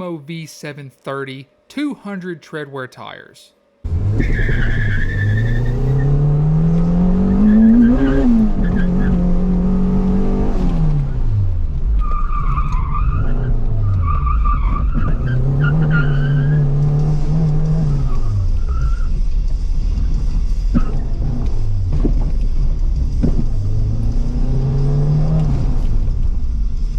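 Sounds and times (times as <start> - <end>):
car engine revving: 3.8 - 26.9
tires squealing: 3.9 - 19.4.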